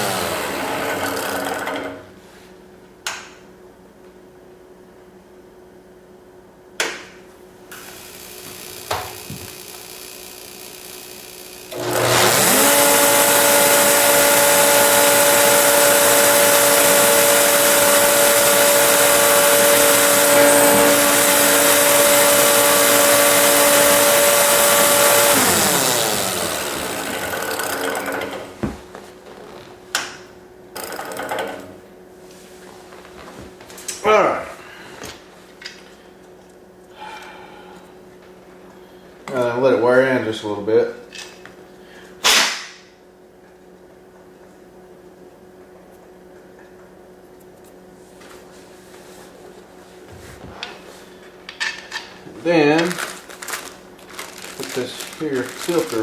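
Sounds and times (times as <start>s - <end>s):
electric motor running: 0.0s - 1.6s, 7.8s - 28.2s, 52.8s - 56.0s.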